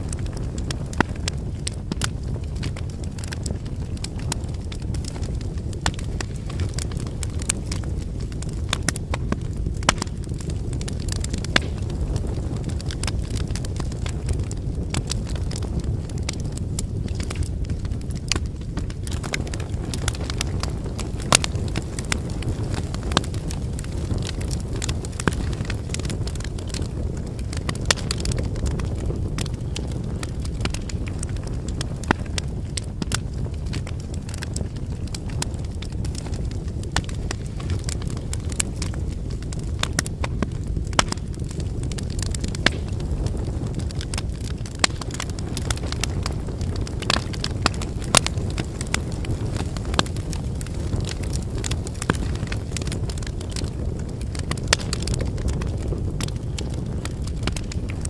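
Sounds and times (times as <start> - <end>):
campfire flames rumbling: 0.0 - 58.0
firewood crackling and popping: 0.0 - 58.0.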